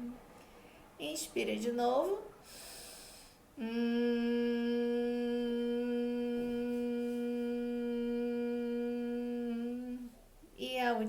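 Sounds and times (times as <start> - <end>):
woman humming exhale: 2.4 - 10.2.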